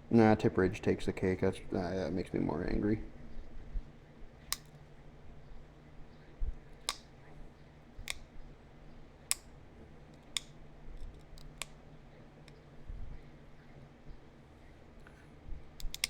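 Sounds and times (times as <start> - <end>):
stone flakes snapping: 4.5 - 4.8, 15.8 - 16.0.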